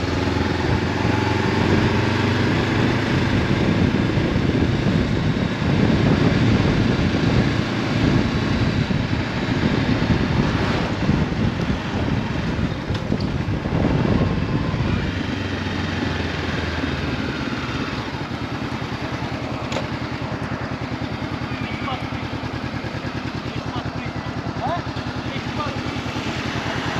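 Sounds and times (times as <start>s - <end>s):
wind noise: 0.0s - 18.3s
motorcycle engine: 0.0s - 26.9s.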